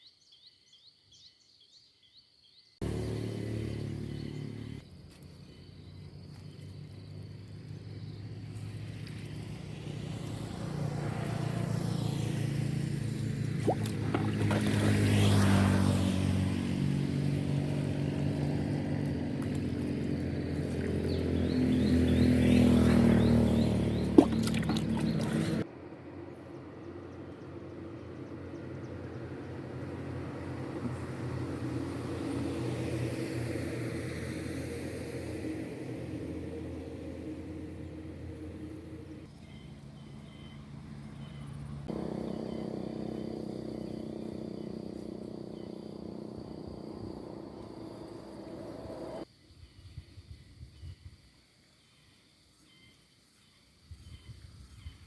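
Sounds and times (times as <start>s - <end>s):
motor engine running: 2.8s - 4.8s, 11.7s - 25.6s, 37.4s - 49.2s.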